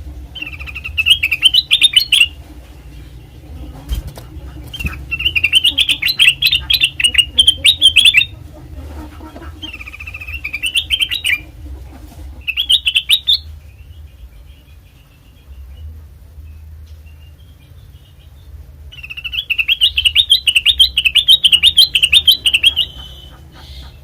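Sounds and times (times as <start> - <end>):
bird warbling song: 0.0 - 24.0
steady low hum: 0.0 - 24.0.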